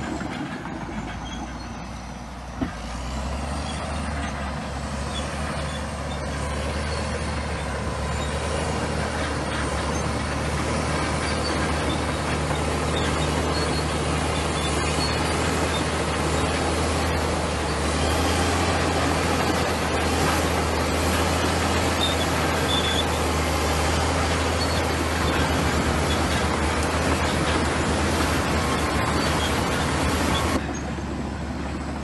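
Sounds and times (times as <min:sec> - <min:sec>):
bulldozer diesel engine running: 0:00.0 - 0:32.0.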